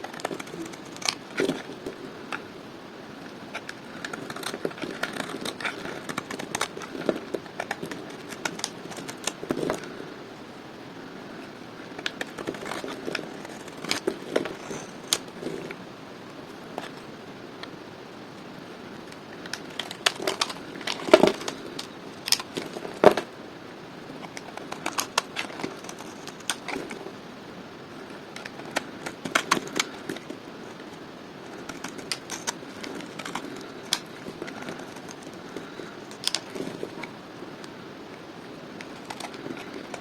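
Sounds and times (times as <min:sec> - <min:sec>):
knife cutting dry soap crackling: 0:03.5 - 0:10.0, 0:12.0 - 0:15.8, 0:19.4 - 0:23.2, 0:28.2 - 0:37.1.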